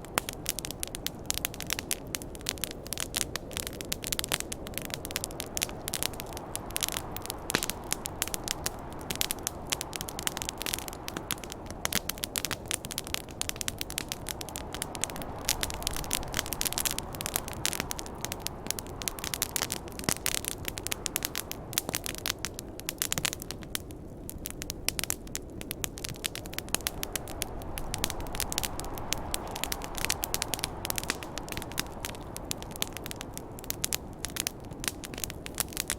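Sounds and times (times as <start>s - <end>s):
campfire crackling and popping: 0.0s - 35.9s
wind rushing: 4.7s - 21.8s, 26.4s - 34.5s.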